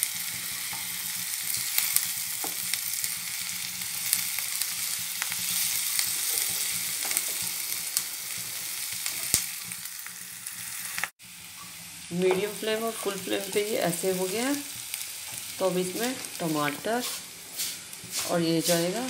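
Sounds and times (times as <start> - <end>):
vegetables sizzling in oil: 0.0 - 19.0
wooden spatula scraping pan: 16.0 - 19.0.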